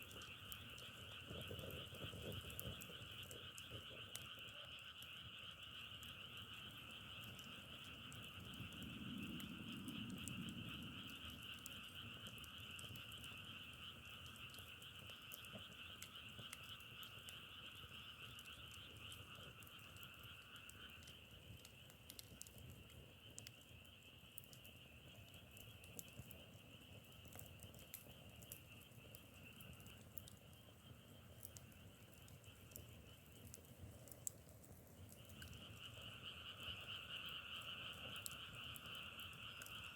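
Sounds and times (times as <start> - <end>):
frog chorus calling: 0.1 - 21.4, 35.0 - 39.9
faint clicks: 0.1 - 39.9.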